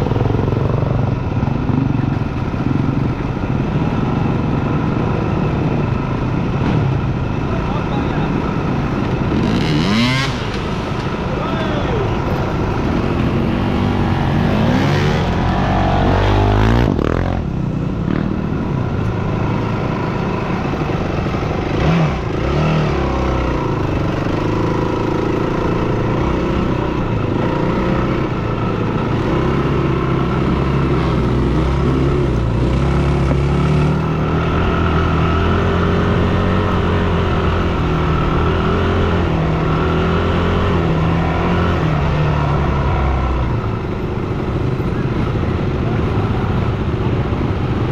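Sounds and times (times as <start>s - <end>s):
dirt bike engine running: 0.0s - 42.6s.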